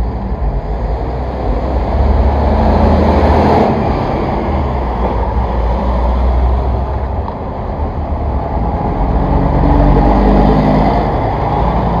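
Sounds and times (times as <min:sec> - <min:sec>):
road noise: 0:00.0 - 0:12.0
vehicle engine rumble: 0:00.0 - 0:12.0.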